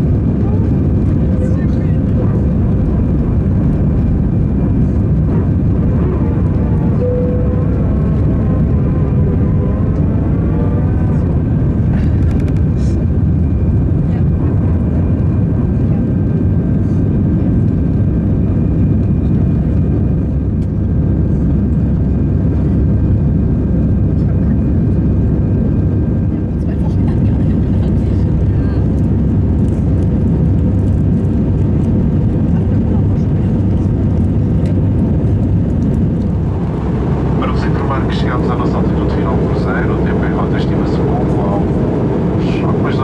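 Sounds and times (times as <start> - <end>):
jet engine rumble: 0.0 - 43.0
faint steady whine: 1.4 - 11.9.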